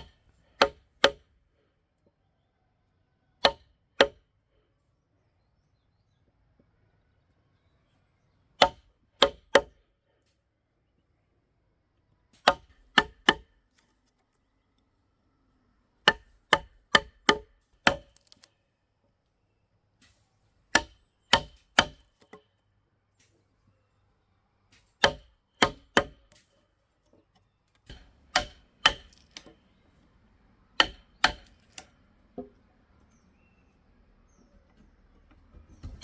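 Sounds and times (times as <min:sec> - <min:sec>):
hand tool striking wood: 0:00.0 - 0:01.2, 0:08.6 - 0:09.7, 0:12.4 - 0:13.5, 0:16.0 - 0:18.4, 0:20.7 - 0:22.4, 0:24.8 - 0:26.5, 0:27.9 - 0:29.6, 0:30.8 - 0:32.6.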